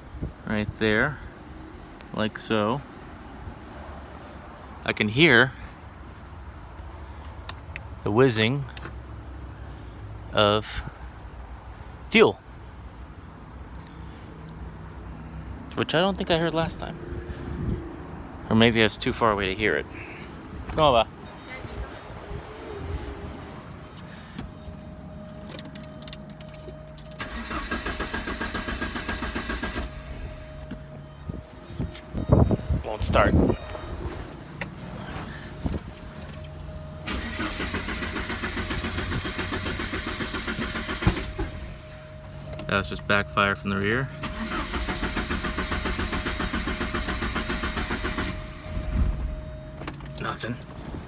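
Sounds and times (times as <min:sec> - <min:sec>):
engine cranking by starter: 0:27.0 - 0:30.5, 0:36.0 - 0:41.9, 0:44.2 - 0:50.2.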